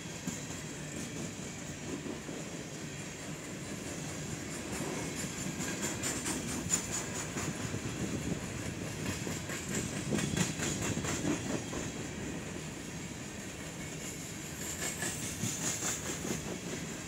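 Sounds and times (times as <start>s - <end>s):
train wheels rumbling on rail: 0.0s - 17.0s
wheels clacking over rail joints: 3.3s - 12.0s.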